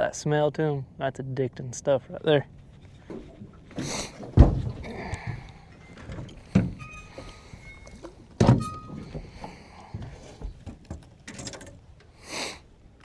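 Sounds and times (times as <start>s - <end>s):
hollow thumps on a boat: 2.9s - 11.8s.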